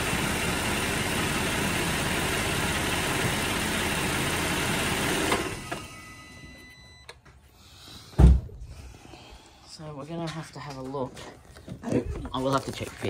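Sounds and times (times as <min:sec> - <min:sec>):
car engine idling: 0:00.0 - 0:05.7.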